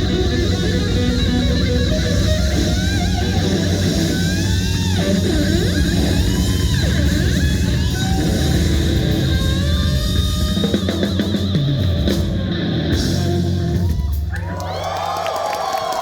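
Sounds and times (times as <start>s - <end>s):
rock band playing: 0.0s - 14.8s
crowd cheering and shouting: 12.9s - 16.0s.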